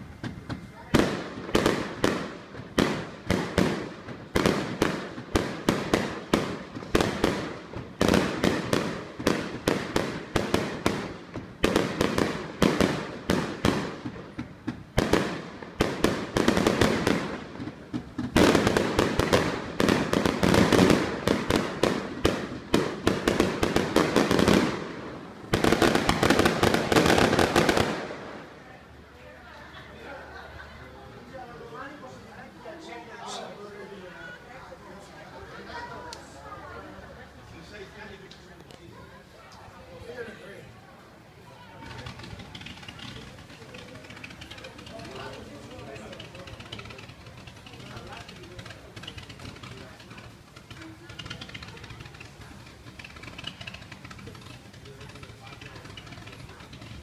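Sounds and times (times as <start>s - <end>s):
fireworks bangs and crackles: 0.0s - 28.9s, 41.4s - 57.0s.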